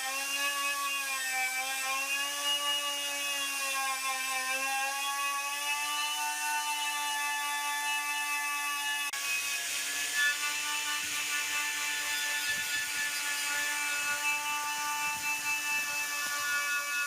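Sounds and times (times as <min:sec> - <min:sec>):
electric power tool whine: 0:00.0 - 0:17.0.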